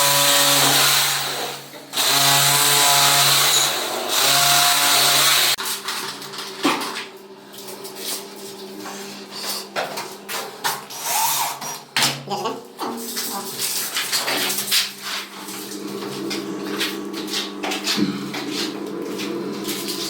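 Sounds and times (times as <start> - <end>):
handheld power tool running: 0.0 - 5.6.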